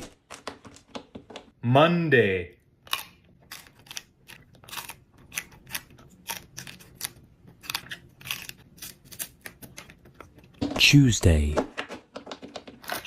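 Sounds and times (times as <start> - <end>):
crisp crunching of food chewing: 2.8 - 10.5.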